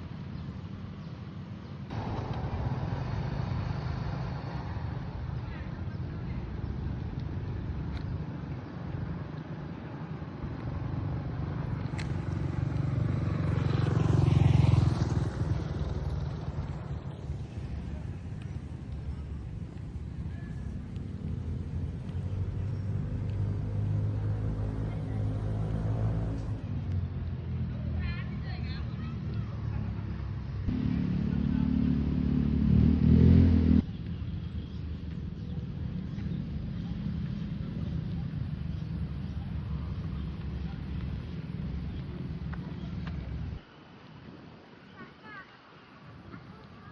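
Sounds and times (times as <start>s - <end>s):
vehicle engine passing: 11.0s - 18.2s, 22.1s - 27.2s, 30.6s - 33.9s.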